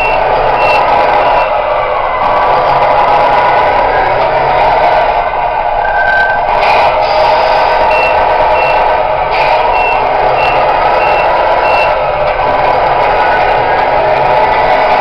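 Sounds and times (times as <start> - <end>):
short high reversing beeps: 0.0 - 1.5, 7.8 - 8.9, 9.7 - 12.0
steady mechanical hum: 0.0 - 15.0.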